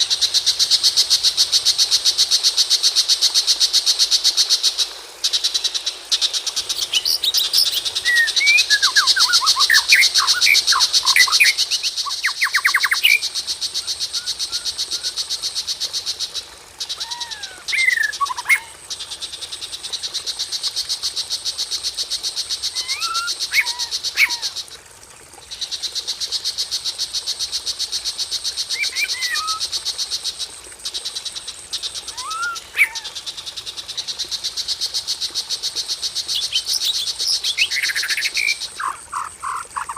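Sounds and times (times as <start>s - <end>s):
songbird whistling gliding notes: 32.2s - 33.0s.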